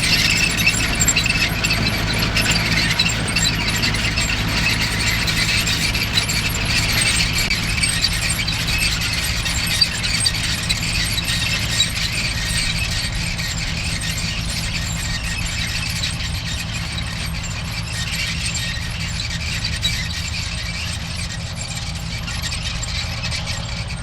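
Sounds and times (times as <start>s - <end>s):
mechanical parts squealing and rattling: 0.0s - 24.0s
tractor engine running: 0.0s - 24.0s.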